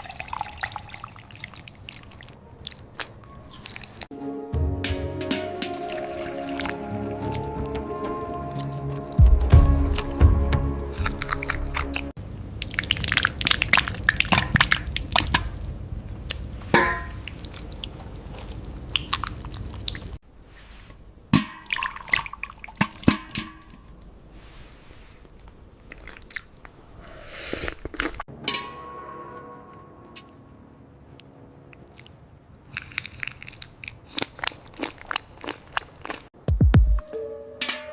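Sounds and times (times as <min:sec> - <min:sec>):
wet smacking eating sounds: 0:00.8 - 0:04.1, 0:05.6 - 0:10.2, 0:10.9 - 0:20.2, 0:25.3 - 0:26.8, 0:31.8 - 0:36.4
music: 0:03.2 - 0:12.1, 0:28.3 - 0:31.2, 0:36.5 - 0:37.9.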